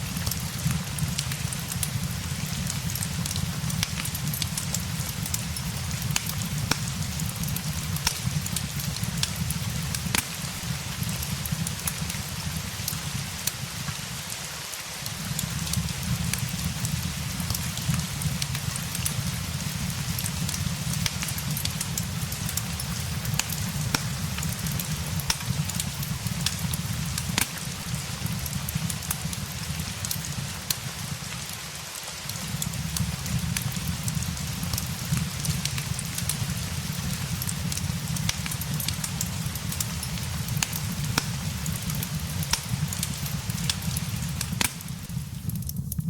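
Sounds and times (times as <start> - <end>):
steady rain: 0.0 - 46.0
wood fire crackles: 0.0 - 46.0.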